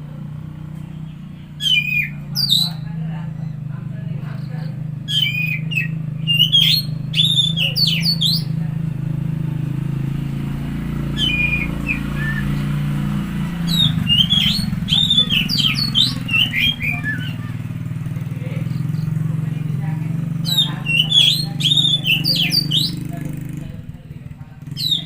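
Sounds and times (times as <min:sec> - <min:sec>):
bird singing sweeping notes: 0:00.9 - 0:03.7, 0:04.4 - 0:08.6, 0:09.2 - 0:19.2, 0:20.1 - 0:23.6, 0:24.6 - 0:25.0.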